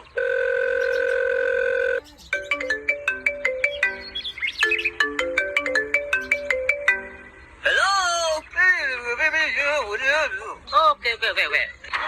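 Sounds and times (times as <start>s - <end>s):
phone ringtone melody: 0.2s - 7.6s.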